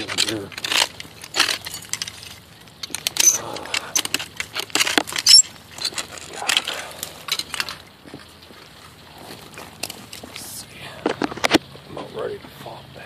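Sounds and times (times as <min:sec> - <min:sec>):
glass and rubble clinking: 0:00.0 - 0:08.2.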